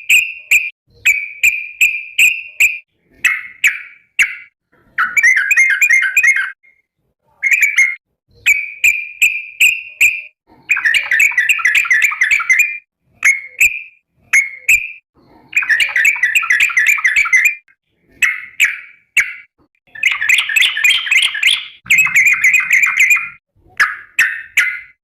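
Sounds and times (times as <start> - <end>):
bird bubbly chattering calls: 15.5 - 17.6, 18.2 - 24.6.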